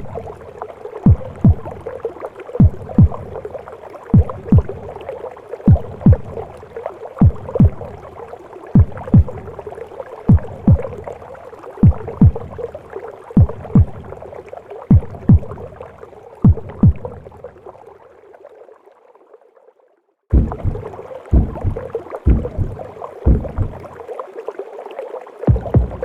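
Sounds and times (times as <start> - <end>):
heartbeat thumps: 1.0 - 1.9, 2.6 - 3.4, 4.1 - 4.9, 5.7 - 6.4, 7.2 - 8.0, 8.8 - 9.6, 10.3 - 11.1, 11.8 - 12.6, 13.4 - 14.2, 14.9 - 15.7, 16.4 - 17.2, 20.3 - 23.9, 25.5 - 26.0.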